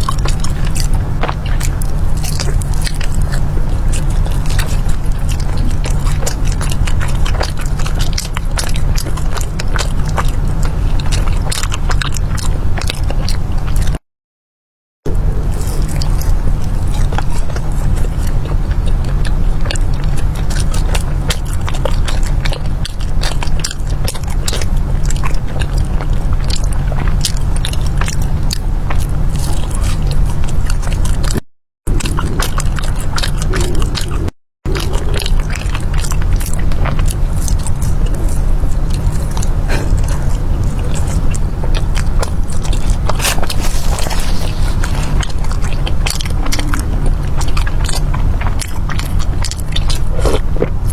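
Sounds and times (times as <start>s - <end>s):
crunchy pastry chewing: 0.0s - 14.0s, 15.1s - 50.9s
low rumble: 15.1s - 50.9s.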